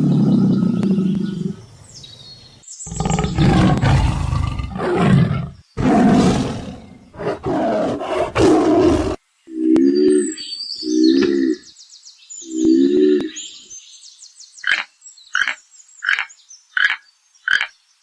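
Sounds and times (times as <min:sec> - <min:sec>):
big cat roaring: 0:02.9 - 0:09.8.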